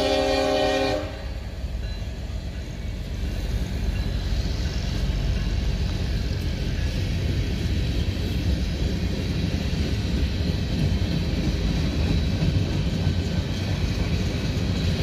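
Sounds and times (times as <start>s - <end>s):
locomotive horn: 0.0s - 1.4s
freight train rumbling on rails: 0.0s - 15.0s.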